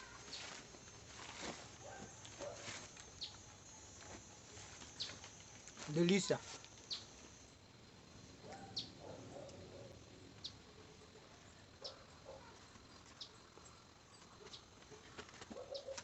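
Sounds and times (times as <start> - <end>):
faint outdoor background: 0.0 - 16.0
bird chirping: 1.8 - 5.5, 6.1 - 7.5, 8.4 - 14.8, 15.6 - 16.0.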